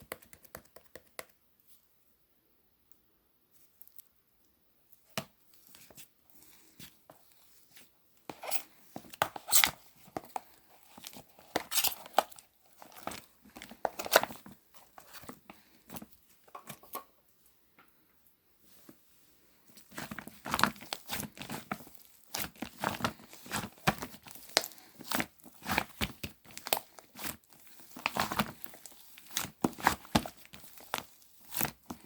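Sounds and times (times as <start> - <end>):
slime crackling and popping: 19.9 - 32.0.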